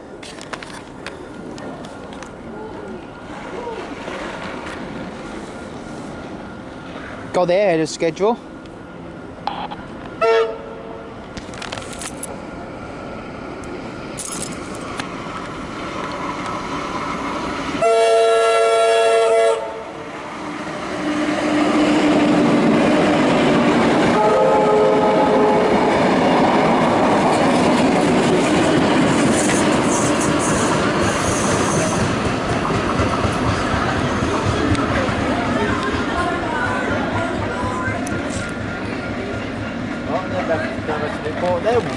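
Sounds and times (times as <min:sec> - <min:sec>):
train rumble and wheel clatter: 0:00.0 - 0:41.9
electric train horn: 0:09.4 - 0:11.2, 0:17.8 - 0:20.0, 0:24.1 - 0:25.9.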